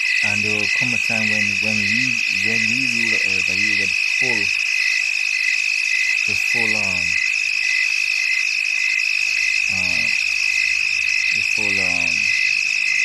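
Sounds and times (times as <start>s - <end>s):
crickets chirping: 0.0s - 13.0s
frogs: 0.0s - 13.0s.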